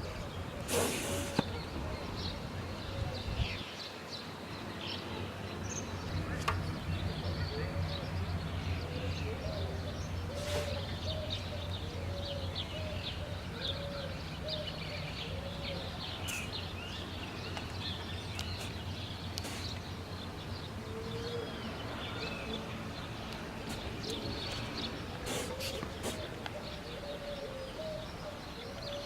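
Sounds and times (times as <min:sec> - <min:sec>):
swallows twittering: 0:00.0 - 0:29.0
lower bird call: 0:08.7 - 0:17.1.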